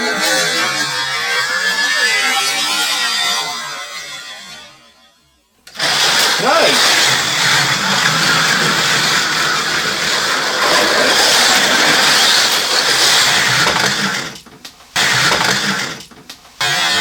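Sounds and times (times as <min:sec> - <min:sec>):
slot car motors whining: 0:05.7 - 0:17.0.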